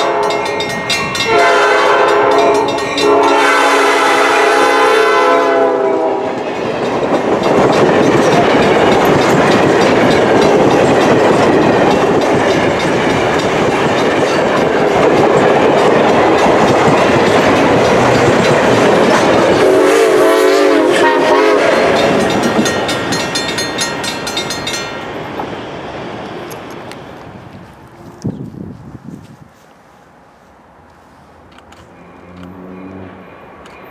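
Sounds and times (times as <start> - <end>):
train wheels clattering: 0.0 - 27.6
train passing on rails: 0.0 - 33.9
steam whistle blast: 1.3 - 6.2, 19.6 - 22.2.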